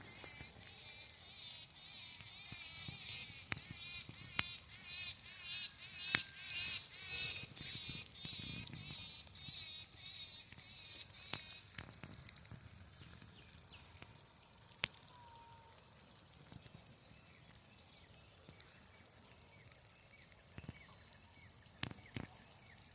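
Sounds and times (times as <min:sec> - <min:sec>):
sharp ticks of drops: 0:00.0 - 0:15.1
irrigation water hissing and dripping: 0:00.0 - 0:22.9.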